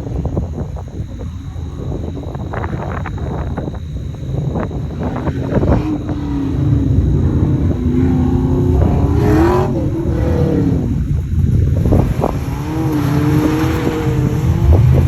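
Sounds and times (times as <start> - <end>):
car engine revving: 4.2 - 15.0.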